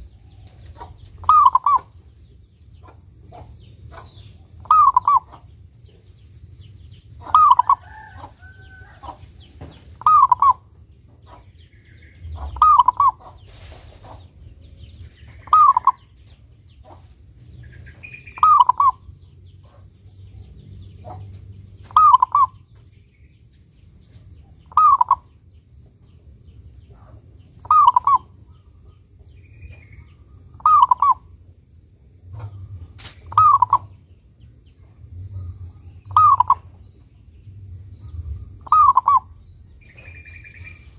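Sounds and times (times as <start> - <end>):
dove cooing: 0.0 - 1.9, 3.3 - 5.5, 7.2 - 9.2, 10.0 - 10.7, 12.3 - 13.4, 15.4 - 16.1, 18.0 - 19.0, 21.9 - 22.6, 24.7 - 25.3, 26.9 - 28.4, 30.5 - 31.3, 33.3 - 33.9, 36.1 - 36.8, 38.6 - 40.9
faint high chirps: 0.0 - 2.1, 6.9 - 10.7, 17.7 - 21.2, 21.8 - 31.4, 33.2 - 40.9.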